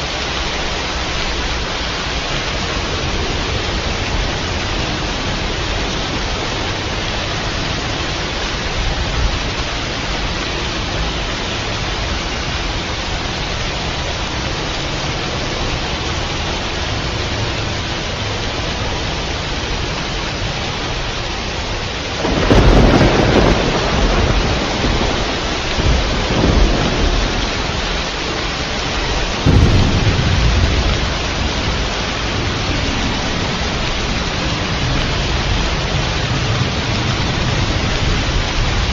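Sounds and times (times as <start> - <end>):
heavy rain hissing: 0.0 - 38.9
thunder cracking and rumbling: 22.2 - 38.9.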